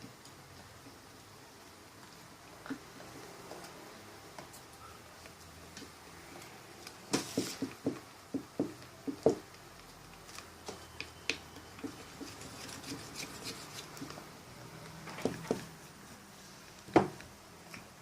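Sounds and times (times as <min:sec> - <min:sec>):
stirring glue in a bowl: 0:11.0 - 0:14.3.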